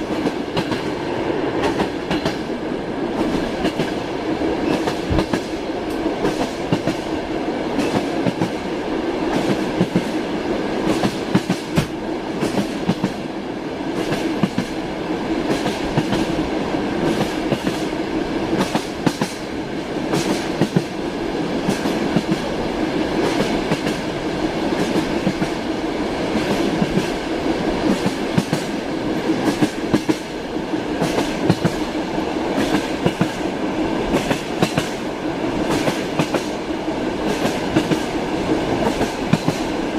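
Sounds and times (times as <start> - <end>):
train carriage rumbling: 0.0 - 39.9
train wheels clacking over rail joints: 1.6 - 2.5, 4.6 - 7.1, 7.7 - 8.6, 10.8 - 13.2, 20.1 - 20.9, 32.6 - 33.5, 34.1 - 35.0, 35.7 - 36.6, 37.2 - 39.8.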